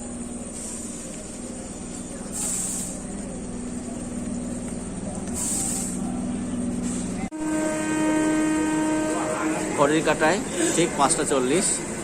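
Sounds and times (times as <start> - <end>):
electric train humming: 0.0 - 12.0.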